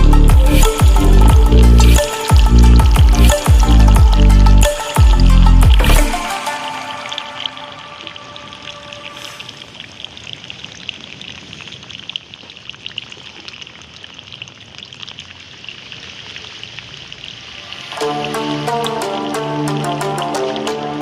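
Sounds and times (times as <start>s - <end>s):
music: 0.0s - 9.6s, 17.6s - 21.0s
water pouring and splashing: 0.0s - 21.0s.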